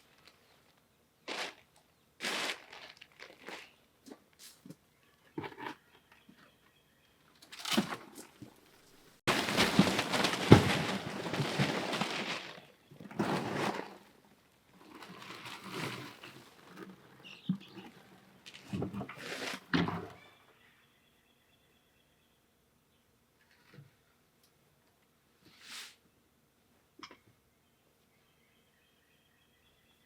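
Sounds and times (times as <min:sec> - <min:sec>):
crunching and crumbling: 0:02.2 - 0:04.2, 0:09.3 - 0:14.1.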